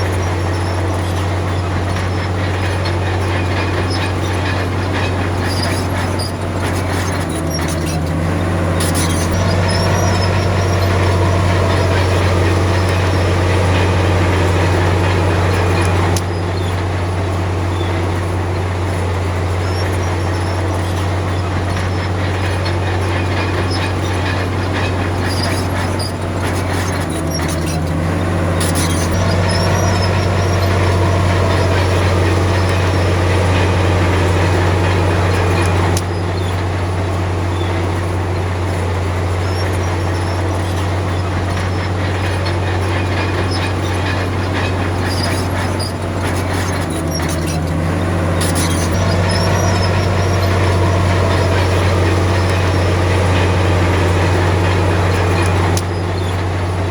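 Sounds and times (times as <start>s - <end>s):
bulldozer diesel engine running: 0.0s - 56.9s
faint high squeaks: 0.0s - 56.9s.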